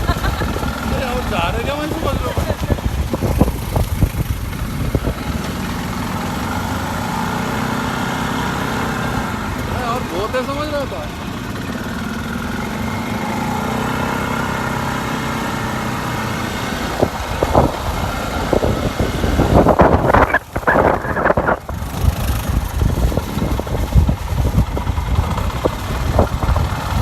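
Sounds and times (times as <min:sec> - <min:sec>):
engine knocks: 0:00.0 - 0:06.1
quad bike engine running: 0:00.0 - 0:27.0.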